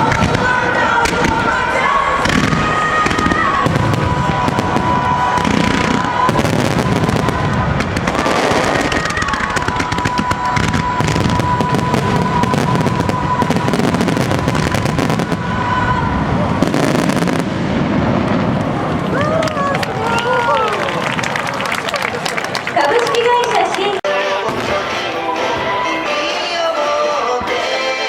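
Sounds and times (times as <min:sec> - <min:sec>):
fireworks whistling: 0:00.0 - 0:19.4
fireworks crackling: 0:00.0 - 0:28.0.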